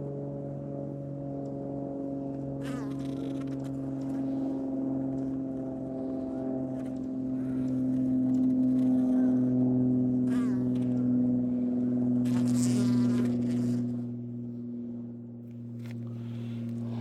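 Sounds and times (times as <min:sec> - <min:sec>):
steady low hum: 0:03.3 - 0:17.0.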